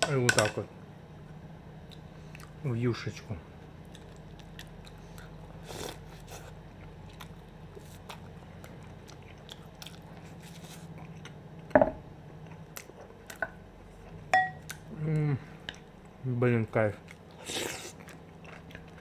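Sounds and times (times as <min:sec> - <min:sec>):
person chewing soft bread: 0:01.8 - 0:02.6, 0:03.6 - 0:11.7, 0:12.3 - 0:16.2, 0:17.0 - 0:19.0.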